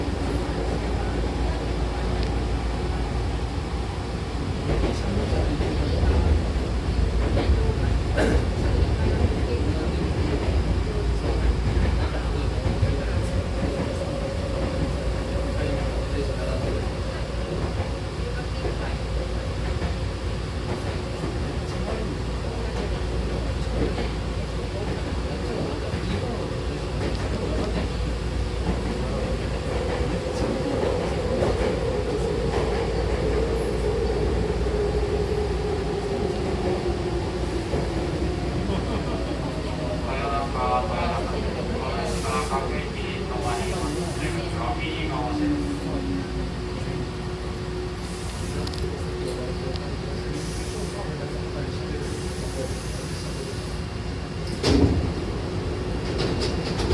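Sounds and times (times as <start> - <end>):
electric train rumble: 0.0 - 56.9.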